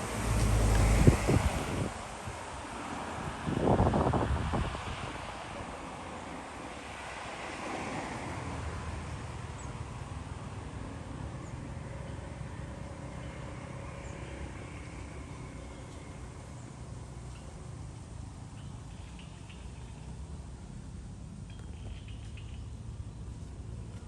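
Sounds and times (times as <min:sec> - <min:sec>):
wind on microphone: 0:00.0 - 0:06.0
distant traffic rumble: 0:00.0 - 0:24.0.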